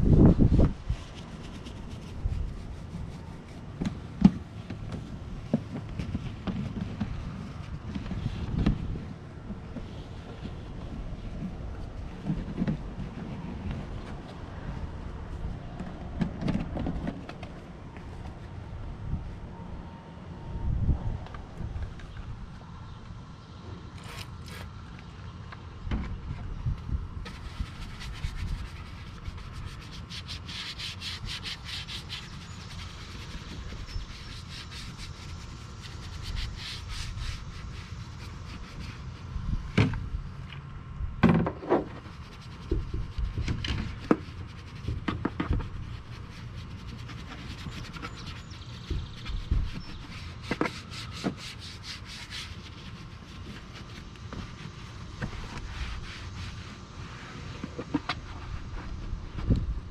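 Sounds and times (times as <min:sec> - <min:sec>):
brush scrubbing: 0:00.9 - 0:04.4, 0:27.3 - 0:39.3, 0:42.0 - 0:59.1.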